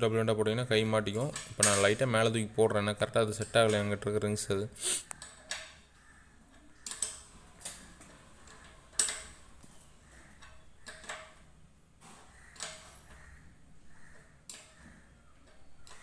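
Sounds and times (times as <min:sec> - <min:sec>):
metal parts clicking and knocking: 0:01.1 - 0:02.3, 0:05.1 - 0:11.6, 0:12.5 - 0:13.3, 0:14.4 - 0:16.0.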